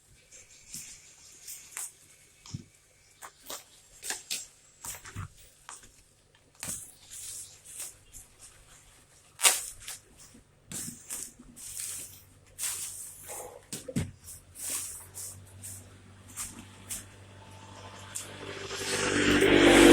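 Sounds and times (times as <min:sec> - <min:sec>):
plastic packaging crinkling: 0:06.5 - 0:17.0.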